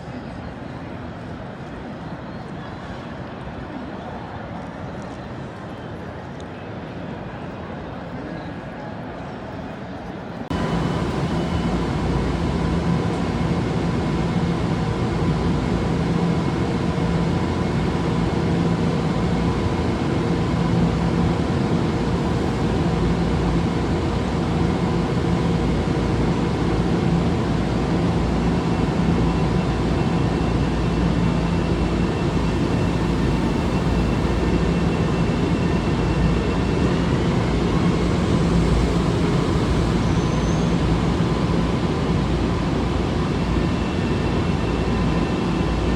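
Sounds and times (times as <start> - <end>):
steady whining tones: 10.5 - 45.9
train rumbling: 10.5 - 45.9.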